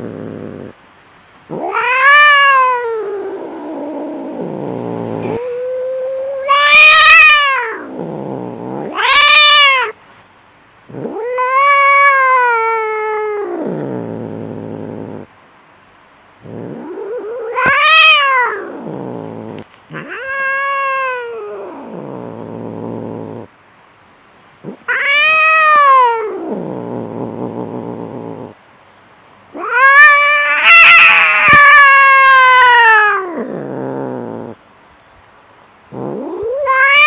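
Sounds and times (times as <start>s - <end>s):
cats yowling and growling: 0.0s - 0.8s, 1.5s - 10.0s, 10.9s - 15.3s, 16.4s - 23.5s, 24.6s - 28.6s, 29.5s - 34.6s, 35.9s - 37.0s.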